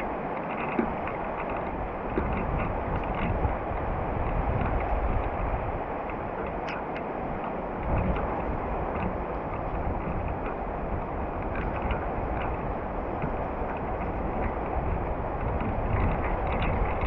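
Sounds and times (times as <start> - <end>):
wind: 0.0 - 17.0
raindrop ticks: 9.0 - 17.0.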